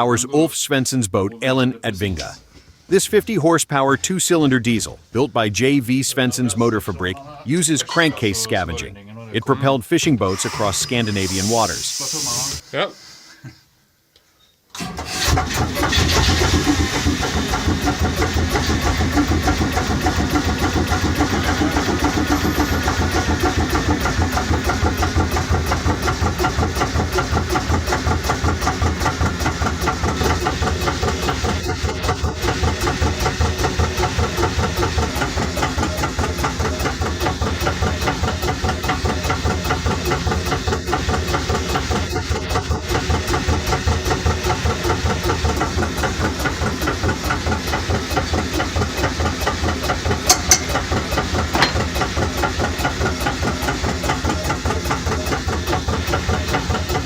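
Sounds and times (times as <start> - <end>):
hot bulb engine running: 10.3 - 12.6, 14.8 - 57.0.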